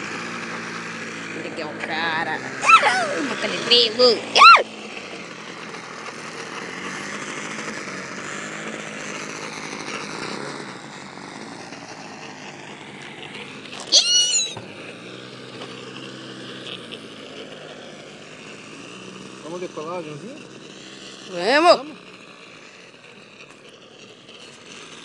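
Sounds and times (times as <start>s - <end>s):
model airplane engine idling: 0.0s - 14.0s, 14.6s - 25.0s
high-pitched animal cry: 2.6s - 3.2s, 4.4s - 4.6s, 13.9s - 14.6s.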